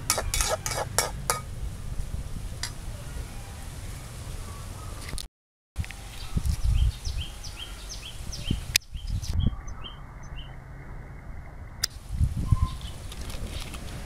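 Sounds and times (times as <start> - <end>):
small bird chirping: 12.4 - 13.7.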